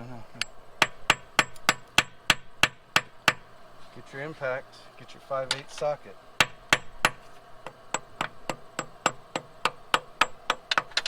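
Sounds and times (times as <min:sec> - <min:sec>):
hammer tapping on metal: 0:00.4 - 0:03.5, 0:05.5 - 0:11.0.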